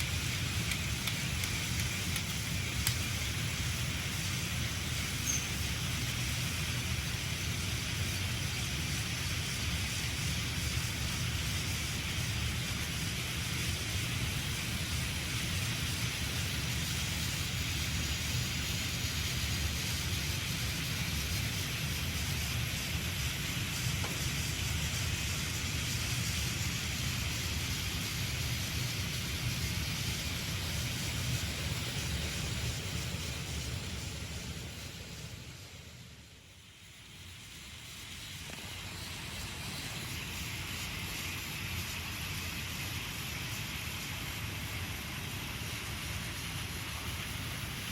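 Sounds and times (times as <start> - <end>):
toy train wheels rattling: 0.0 - 3.5
toy train motor whirring: 0.0 - 33.9.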